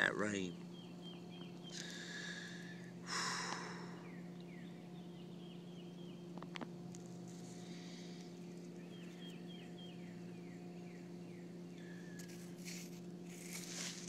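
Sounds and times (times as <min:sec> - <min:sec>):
bird chirping faintly: 0:00.0 - 0:02.9, 0:03.7 - 0:06.9, 0:07.5 - 0:12.5
low steady hum: 0:00.0 - 0:14.0
faint rustling: 0:06.6 - 0:09.5, 0:11.9 - 0:14.0.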